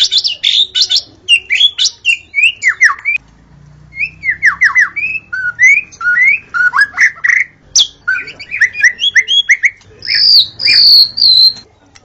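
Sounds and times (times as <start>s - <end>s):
bird singing whistled notes: 0.0s - 3.2s, 3.9s - 11.6s.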